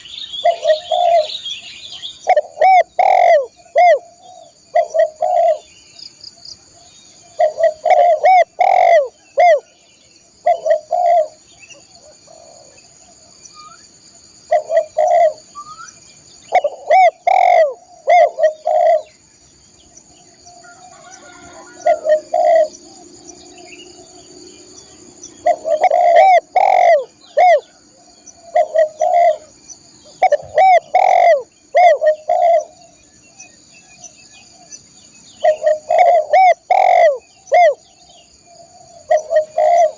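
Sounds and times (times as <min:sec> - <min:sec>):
dove cooing: 0:00.0 - 0:01.4, 0:02.2 - 0:05.7, 0:06.8 - 0:09.7, 0:10.4 - 0:13.4, 0:14.4 - 0:15.6, 0:16.5 - 0:19.2, 0:20.4 - 0:33.0, 0:35.4 - 0:39.9.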